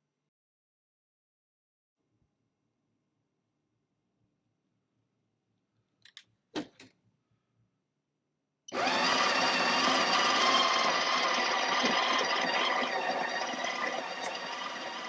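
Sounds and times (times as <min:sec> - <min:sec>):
coffee grinder grinding beans: 0:08.7 - 0:15.0.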